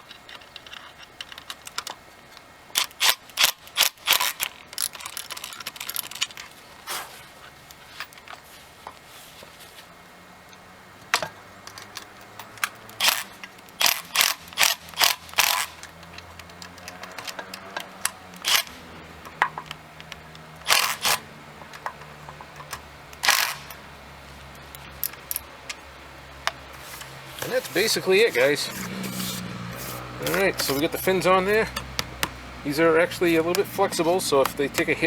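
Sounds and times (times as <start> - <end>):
ratchet wrench clicking: 2.8 - 6.2, 11.7 - 21.2, 21.8 - 23.8, 27.0 - 35.0.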